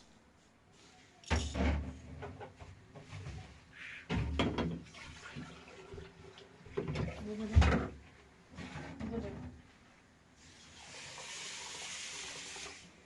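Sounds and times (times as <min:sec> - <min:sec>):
light knocks and clatter: 0:04.1 - 0:04.9.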